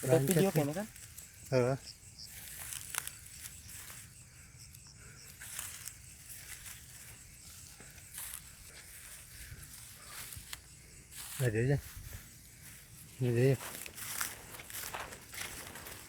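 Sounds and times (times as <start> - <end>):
soft rustling and crackling: 5.4 - 16.0.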